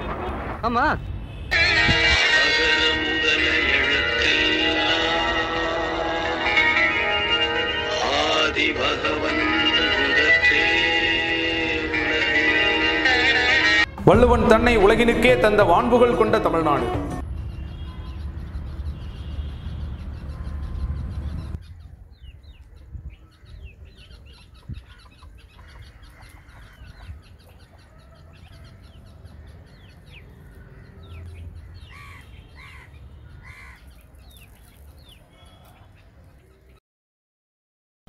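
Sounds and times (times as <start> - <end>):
low rumble: 13.9 - 17.5
small birds chirping: 17.2 - 36.8
loud arched bird calls: 17.3 - 36.1.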